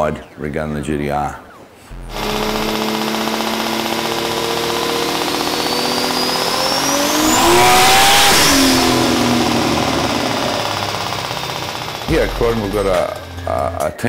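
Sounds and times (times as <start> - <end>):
car engine revving: 1.9 - 13.7.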